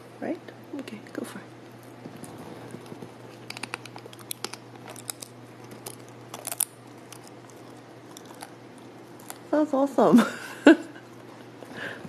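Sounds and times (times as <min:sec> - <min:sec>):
person chewing a chip: 0:02.1 - 0:09.5.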